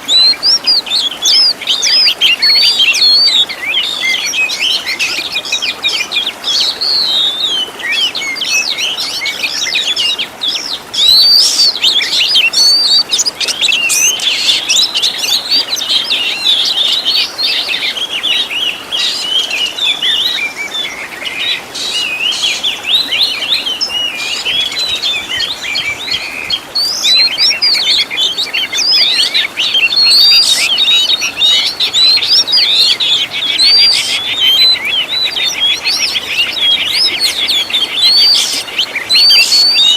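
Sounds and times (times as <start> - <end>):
songbirds singing: 0.0 - 39.9
bird trills: 11.0 - 17.0, 25.4 - 39.9.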